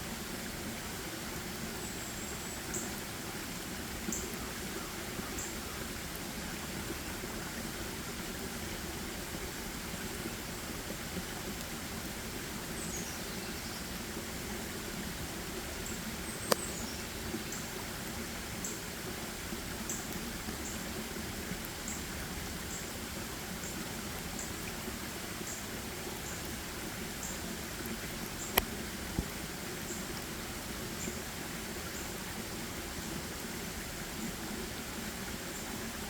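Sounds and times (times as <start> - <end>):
sharp click: 16.4 - 16.7.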